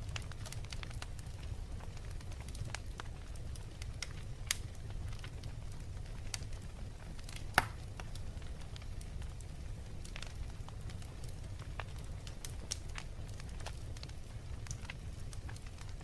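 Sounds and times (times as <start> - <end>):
wood fire crackling: 0.0 - 16.0
loud fire pops: 7.2 - 8.2.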